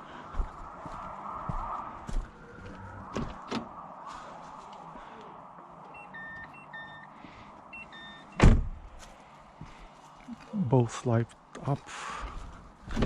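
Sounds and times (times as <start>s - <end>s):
car warning chime beeping: 5.9s - 8.4s.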